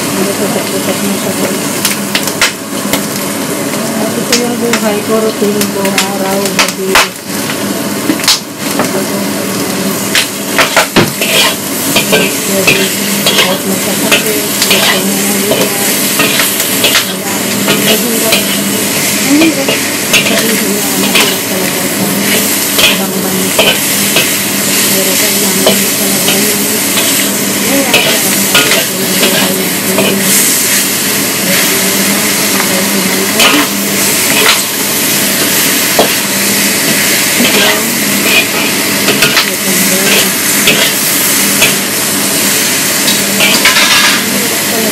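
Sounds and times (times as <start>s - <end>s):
food sizzling in a wok: 0.0s - 44.9s
spatula scraping a metal pan: 10.7s - 18.6s.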